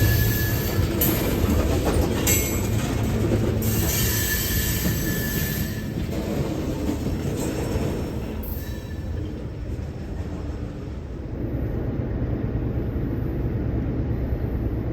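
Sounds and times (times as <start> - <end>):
wheel squeal: 0.0 - 1.3, 3.6 - 6.5, 7.3 - 9.3
freight train cars rolling: 0.0 - 14.9.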